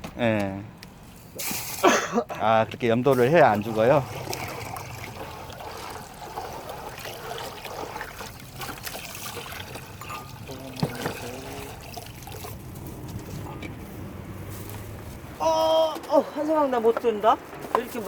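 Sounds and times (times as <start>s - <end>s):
small knocks and splashes: 2.8s - 13.6s
water trickling: 2.8s - 13.6s.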